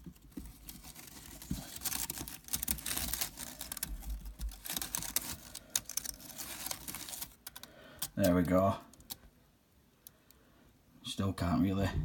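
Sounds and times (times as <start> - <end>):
leaf rustling and crackling: 0.0 - 8.5
small irregular clicks and taps: 6.9 - 9.3.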